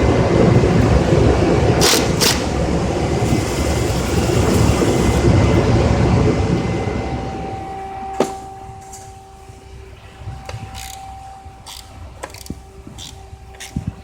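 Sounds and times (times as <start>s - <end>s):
loud noise: 0.0s - 13.5s
faint steady tones: 2.5s - 14.0s
hand ratchet clicking: 10.8s - 11.0s, 11.6s - 13.8s.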